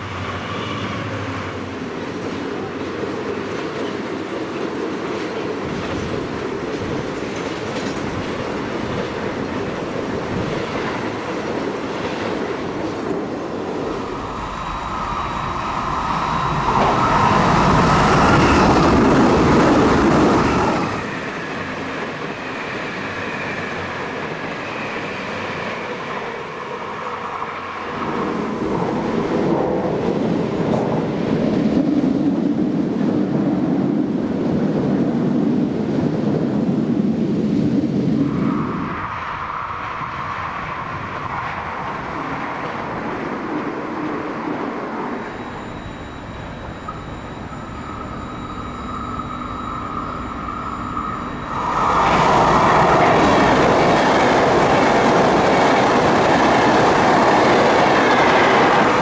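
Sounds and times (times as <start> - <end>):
electric train whine: 0.0 - 59.0
freight wagons clattering on rails: 2.1 - 13.4.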